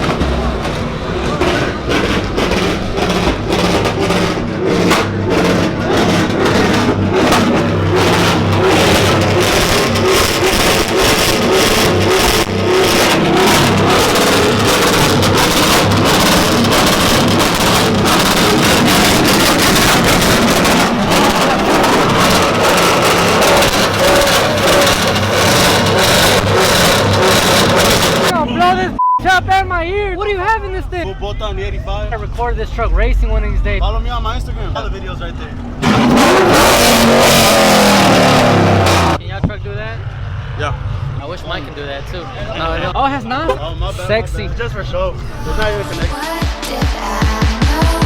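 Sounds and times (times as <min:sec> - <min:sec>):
exhaust pops and bangs: 0:00.0 - 0:28.8, 0:32.2 - 0:40.2
truck engine running: 0:00.0 - 0:48.0.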